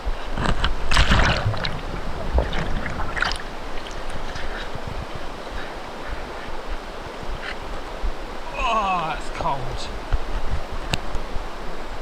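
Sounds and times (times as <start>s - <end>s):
river current rushing: 0.0s - 12.0s
person splashing in water: 0.7s - 4.6s.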